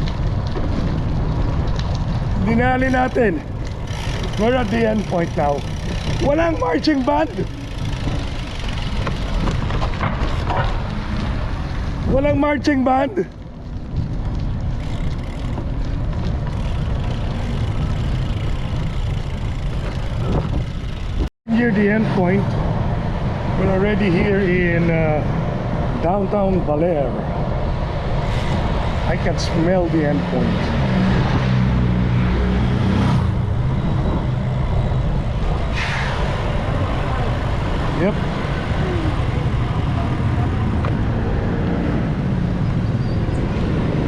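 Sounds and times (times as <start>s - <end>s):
wind and road rumble: 0.0s - 44.0s
brief hiss: 35.7s - 36.2s.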